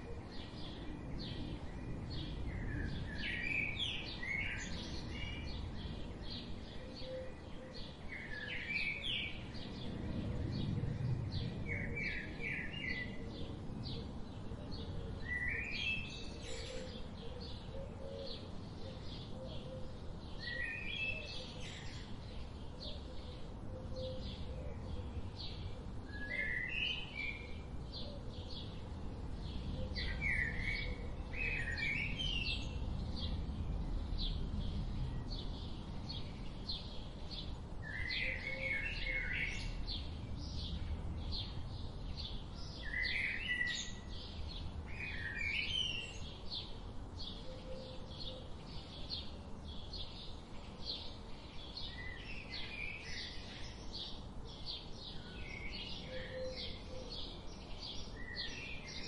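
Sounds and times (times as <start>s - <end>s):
low outdoor rumble: 9.4s - 15.2s, 27.4s - 42.9s.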